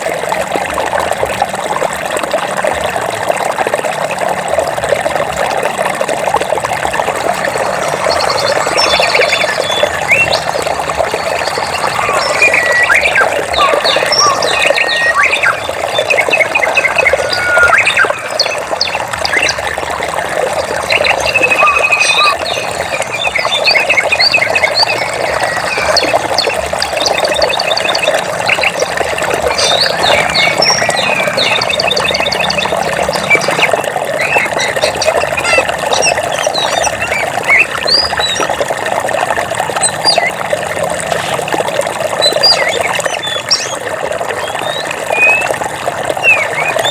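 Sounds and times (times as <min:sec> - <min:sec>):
stream water flowing: 0:00.0 - 0:46.9
birds chirping and trilling: 0:07.0 - 0:38.6, 0:39.8 - 0:40.4, 0:42.1 - 0:46.9.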